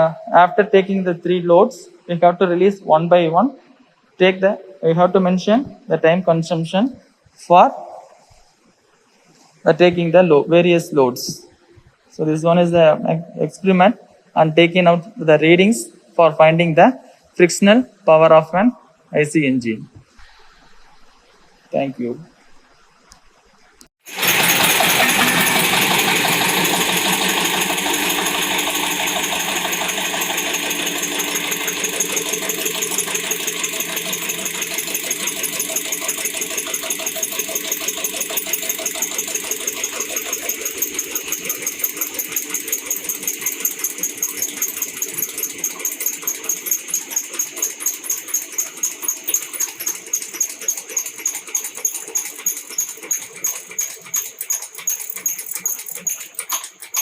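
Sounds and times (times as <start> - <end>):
diesel engine running: 24.1 - 43.0.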